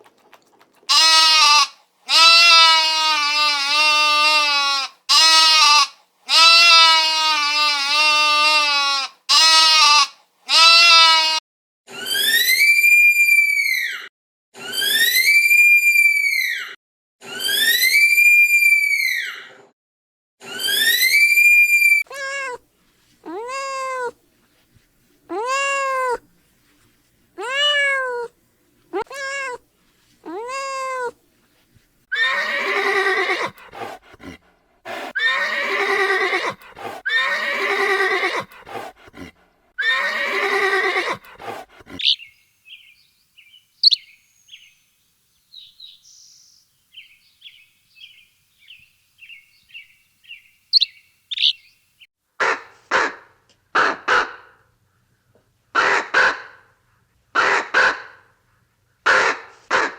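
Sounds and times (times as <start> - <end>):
animal calls rising and falling: 11.9 - 19.5, 20.4 - 22.6, 23.3 - 24.2, 25.3 - 26.2, 27.4 - 28.3, 32.1 - 38.9, 39.8 - 42.2, 50.7 - 51.6.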